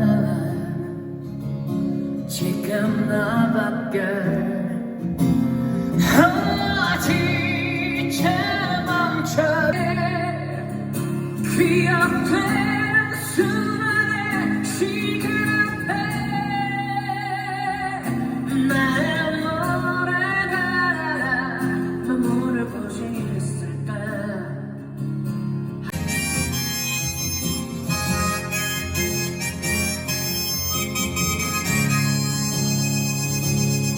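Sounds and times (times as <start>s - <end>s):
man singing a slow ballad: 0.0s - 25.0s
guitar: 0.0s - 33.9s.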